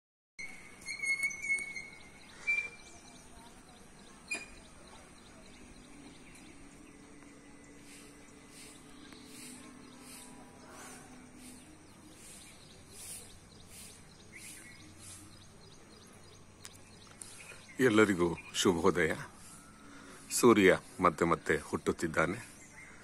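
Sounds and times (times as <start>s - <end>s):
birds whistling calls: 0.4s - 21.0s
high bird chirps: 0.4s - 21.0s
faint low hum: 2.2s - 14.4s.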